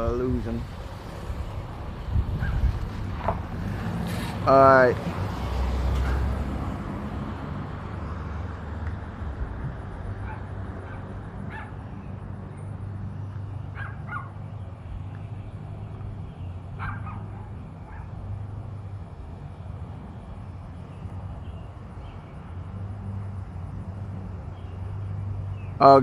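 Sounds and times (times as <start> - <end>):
distant dog barking: 2.4 - 2.7, 6.0 - 6.4, 10.2 - 11.8, 13.7 - 14.5, 16.8 - 18.2.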